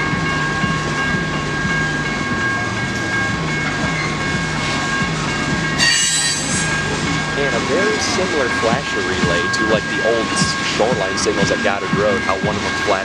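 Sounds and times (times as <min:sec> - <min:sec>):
train wheels clicking over rails: 0:00.0 - 0:13.0
high-pitched screech: 0:05.8 - 0:13.0.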